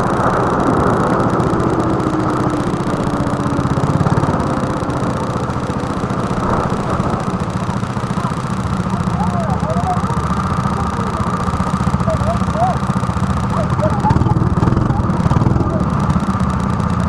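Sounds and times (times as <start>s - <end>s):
go-kart engine running: 0.0s - 17.0s.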